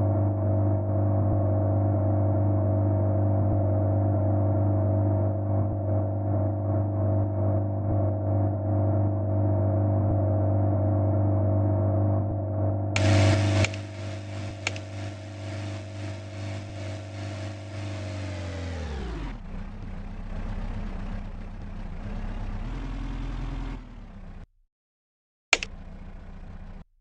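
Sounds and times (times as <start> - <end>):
car engine running: 12.2 - 24.5, 25.6 - 26.9.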